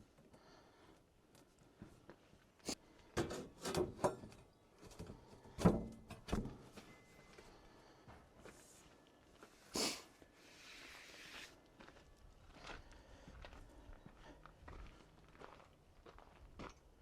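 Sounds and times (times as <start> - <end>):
objects knocking and clunking: 3.1 - 6.9.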